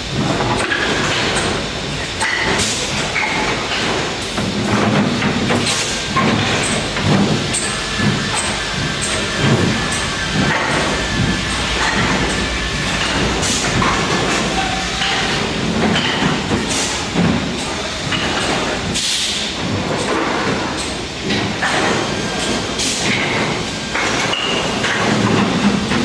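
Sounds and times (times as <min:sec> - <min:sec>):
cnc machine clattering: 0:00.0 - 0:26.0.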